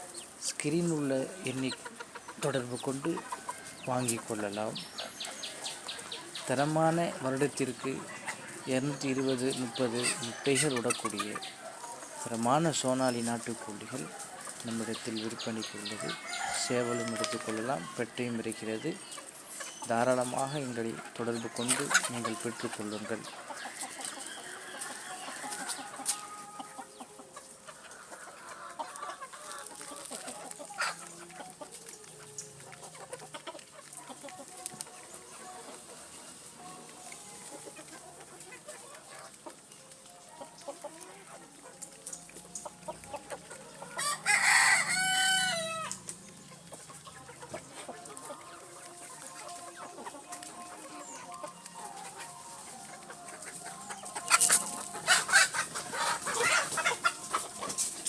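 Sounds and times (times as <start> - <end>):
chickens clucking: 0.0 - 58.0
rooster crowing: 15.8 - 18.0, 23.6 - 26.6, 44.0 - 46.0.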